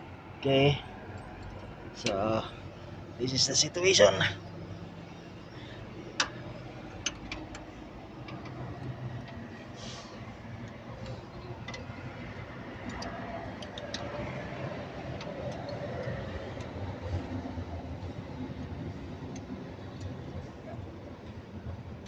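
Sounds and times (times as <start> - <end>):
diesel engine running: 0.0 - 22.0
spanner metallic clicks: 10.6 - 16.8.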